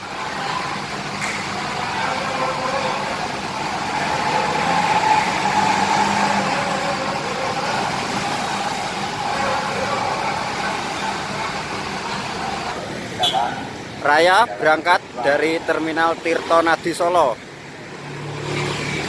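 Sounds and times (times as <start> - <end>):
bus engine humming: 0.0 - 19.0.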